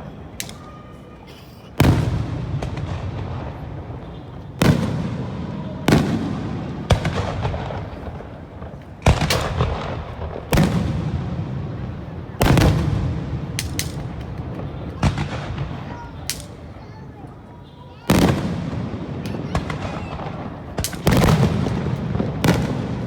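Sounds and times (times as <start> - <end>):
fireworks booming: 1.7 - 23.0.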